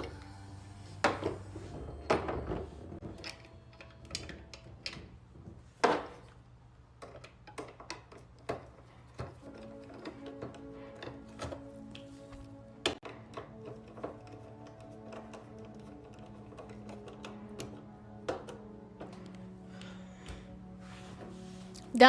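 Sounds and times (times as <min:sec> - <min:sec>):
hard objects knocking and clattering: 0:01.0 - 0:11.8, 0:12.8 - 0:19.3.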